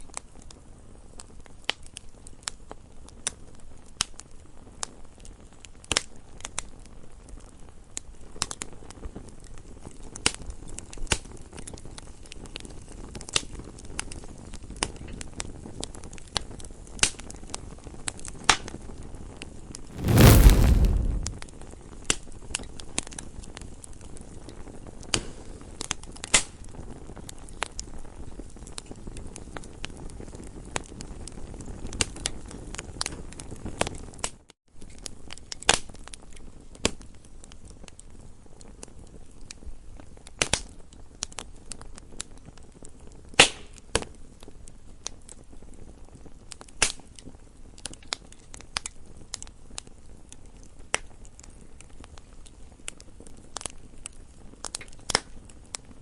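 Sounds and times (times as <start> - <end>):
low rumble of flames: 19.9 - 21.4
wood crackling and popping: 19.9 - 21.4.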